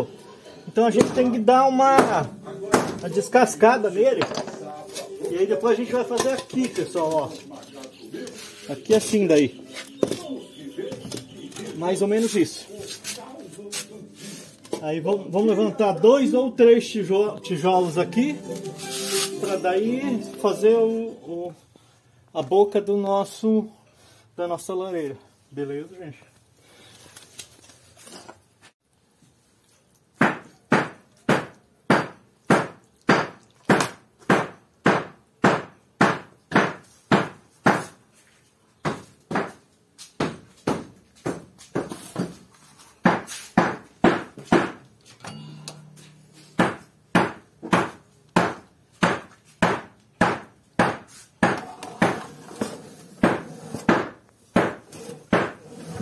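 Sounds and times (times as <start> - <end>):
hammer striking concrete: 1.9 - 3.0, 30.2 - 38.0, 46.6 - 52.3, 53.2 - 55.6.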